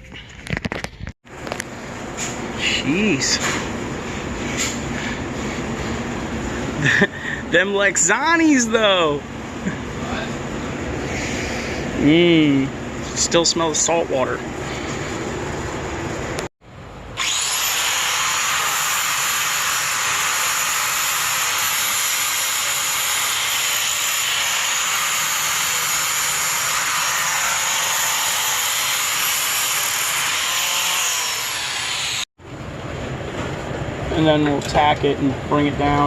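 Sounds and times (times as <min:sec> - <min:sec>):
electric grinder on metal: 0:17.2 - 0:32.3.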